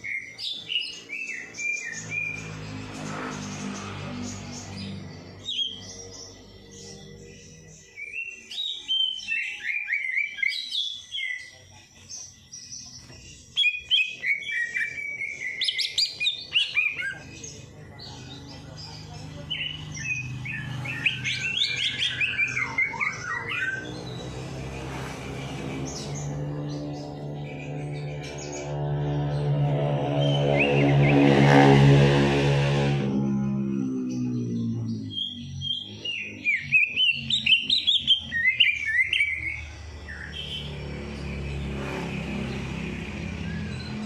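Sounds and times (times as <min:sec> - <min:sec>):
songbird chirping and trilling: 0:00.0 - 0:44.0
low steady drone: 0:02.0 - 0:08.1, 0:17.1 - 0:44.0.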